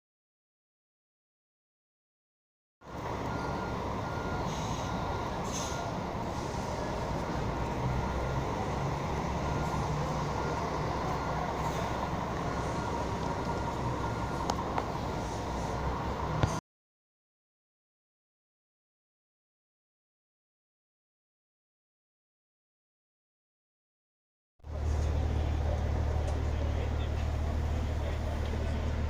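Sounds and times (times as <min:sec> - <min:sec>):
vehicle low rumble: 0:02.8 - 0:16.6, 0:24.6 - 0:29.0
faint repeating beep: 0:03.2 - 0:06.0.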